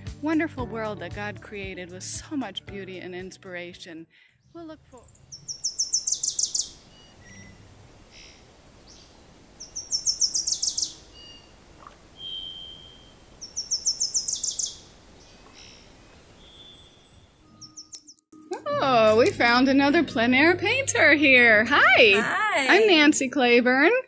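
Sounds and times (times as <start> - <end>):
songbird trilling: 5.0 - 7.6, 8.9 - 18.2
faint bird chirps: 5.0 - 18.2.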